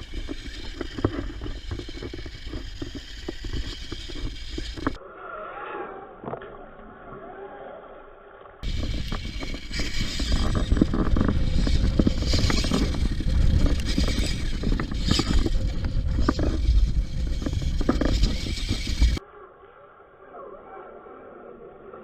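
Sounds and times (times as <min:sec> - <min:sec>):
toy truck driving over rough ground: 0:00.0 - 0:05.0, 0:08.6 - 0:19.2.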